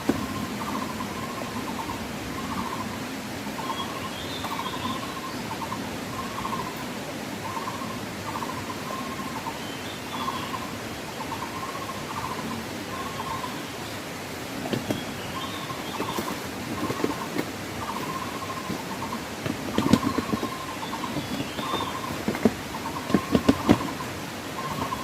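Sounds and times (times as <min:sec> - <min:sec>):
steady background hiss: 0:00.0 - 0:25.0
trilled animal calls: 0:14.7 - 0:25.0.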